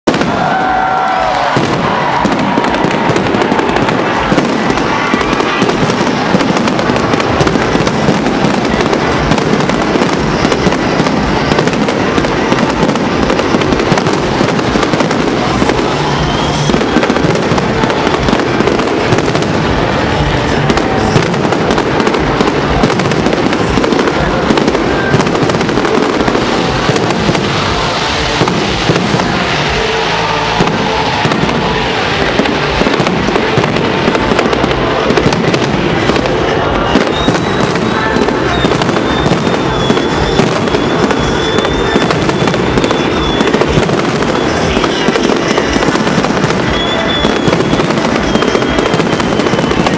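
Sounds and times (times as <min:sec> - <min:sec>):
fireworks bursts and crackling: 0:00.0 - 0:49.9.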